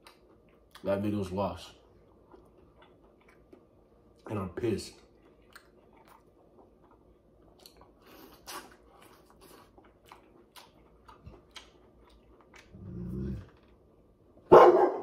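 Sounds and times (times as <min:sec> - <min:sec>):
chewing corn on the cob: 0:00.0 - 0:01.1, 0:01.7 - 0:13.8.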